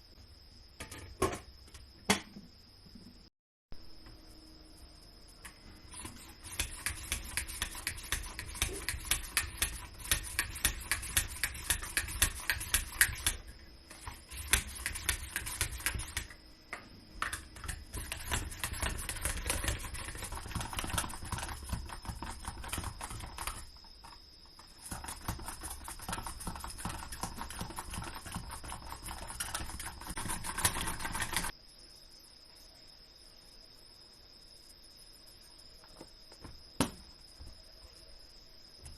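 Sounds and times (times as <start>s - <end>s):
knife chopping vegetables on a board: 5.9s - 16.4s, 17.2s - 31.5s.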